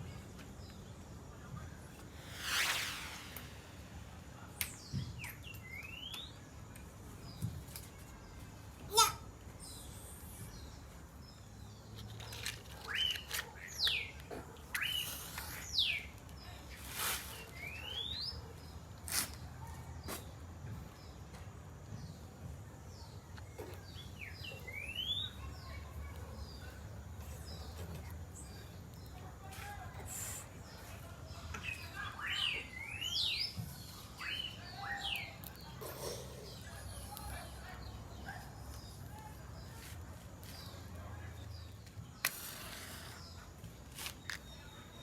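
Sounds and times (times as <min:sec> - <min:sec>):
birds chirping: 0:30.7 - 0:39.8.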